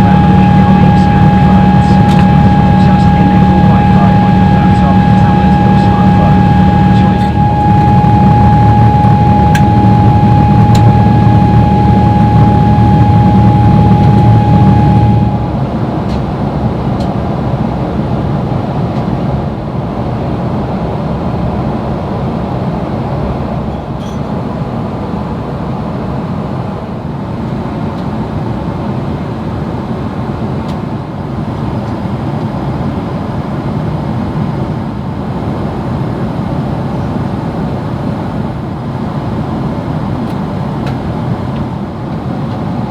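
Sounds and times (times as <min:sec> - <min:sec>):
high whine: 0:00.0 - 0:26.8
jet engine roar: 0:00.0 - 0:42.9.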